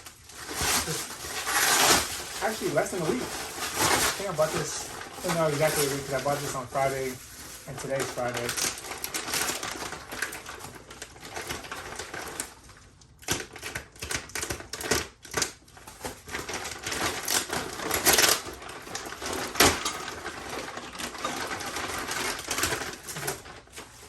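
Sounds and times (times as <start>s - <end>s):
packaging rustling: 0.0s - 24.0s.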